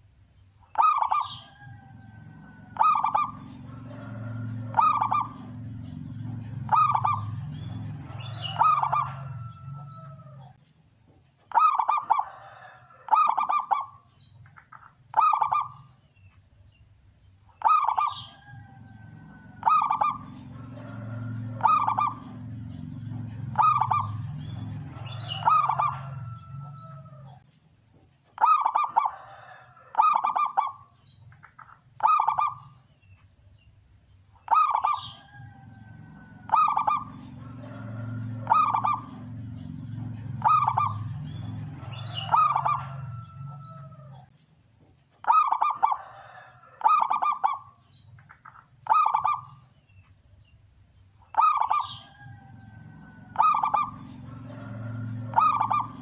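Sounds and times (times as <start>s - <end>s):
dove cooing: 0.7s - 10.6s, 11.5s - 14.0s, 15.1s - 15.9s, 17.6s - 27.4s, 28.4s - 30.9s, 32.0s - 32.8s, 34.5s - 44.3s, 45.2s - 47.8s, 48.8s - 49.6s, 51.3s - 56.0s
low hum: 1.4s - 10.6s, 18.3s - 27.4s, 35.1s - 44.3s, 52.0s - 56.0s.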